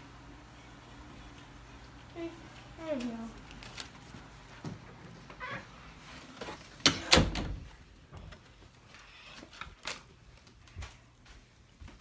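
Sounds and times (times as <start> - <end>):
door banging: 6.8 - 7.8.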